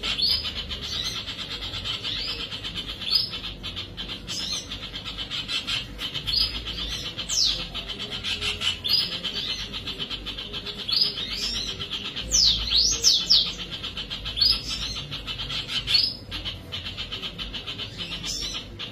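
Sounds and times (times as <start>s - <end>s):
birds twittering: 0.0s - 18.9s.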